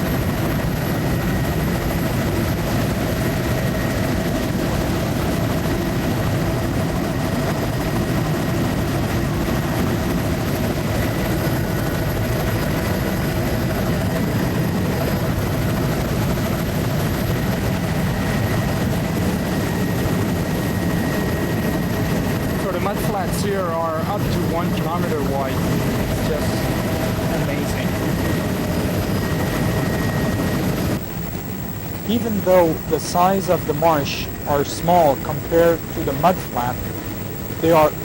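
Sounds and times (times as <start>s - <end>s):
aircraft engine drone in cabin: 0.0s - 38.0s
faint steady tones: 20.3s - 38.0s.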